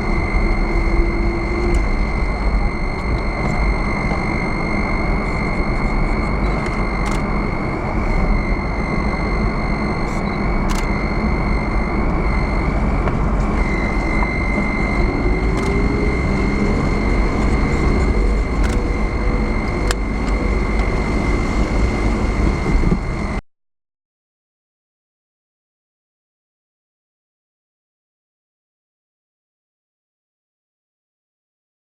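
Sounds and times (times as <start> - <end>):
steady high-pitched tone: 0.0 - 23.4
vehicle road and engine noise: 0.0 - 23.4.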